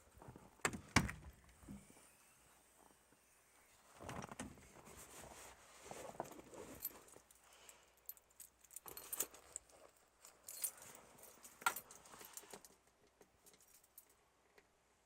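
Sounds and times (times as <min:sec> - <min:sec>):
light clicks and rattles: 0:06.2 - 0:14.7
keys jangling: 0:06.7 - 0:12.8.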